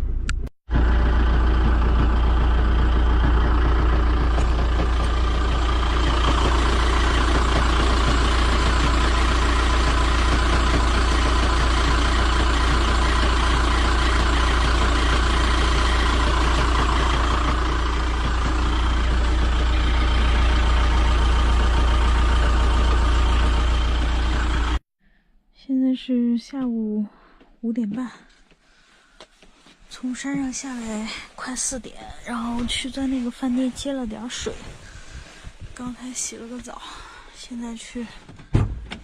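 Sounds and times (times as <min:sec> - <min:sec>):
engine idling with deep rumble: 0:00.7 - 0:24.8, 0:30.2 - 0:39.0.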